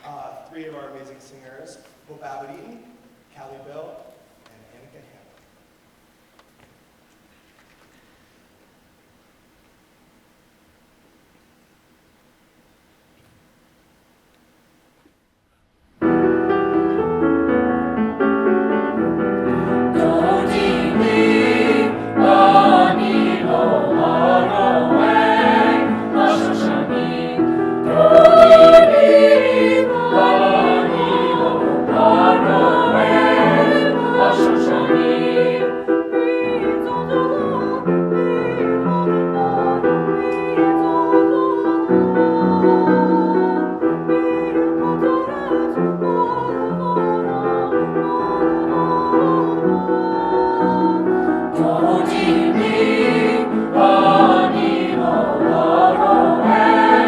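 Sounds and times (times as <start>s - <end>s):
piano accompaniment: 16.0s - 57.0s
choir singing: 18.2s - 57.0s.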